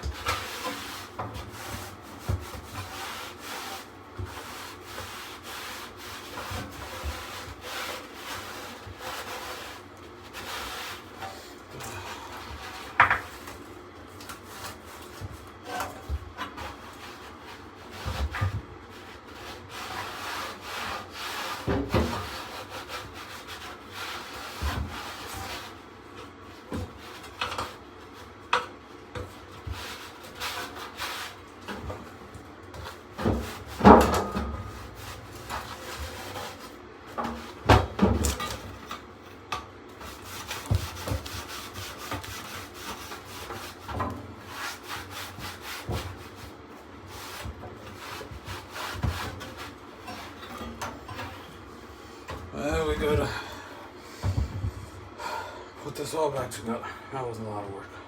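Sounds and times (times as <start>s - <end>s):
scrubbing and wiping: 0.0s - 28.4s, 29.3s - 39.0s, 39.9s - 54.8s.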